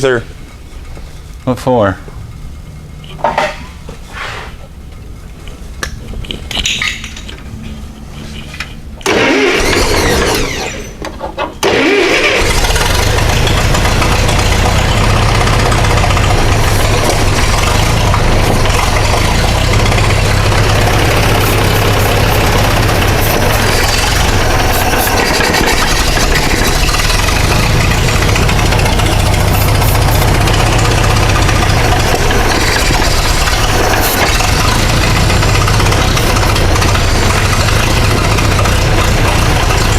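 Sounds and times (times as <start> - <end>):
tractor engine running: 4.8 - 39.9
starter cranking engine: 9.0 - 39.9.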